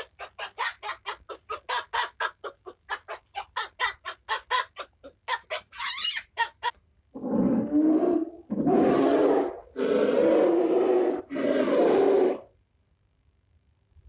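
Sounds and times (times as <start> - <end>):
low animal sound: 7.2 - 12.5.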